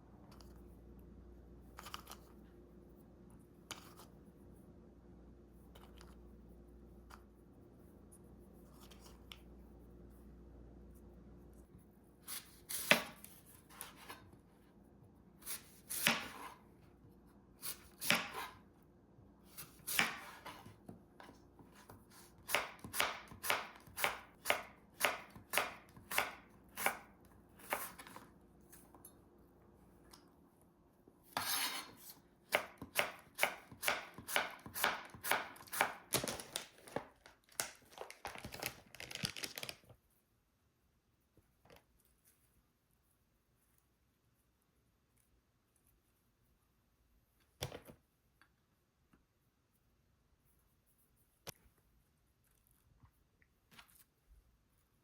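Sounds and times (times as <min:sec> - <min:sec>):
knife chopping on cutting board: 0:17.6 - 0:18.6, 0:19.6 - 0:20.5, 0:22.4 - 0:28.1, 0:32.5 - 0:36.1.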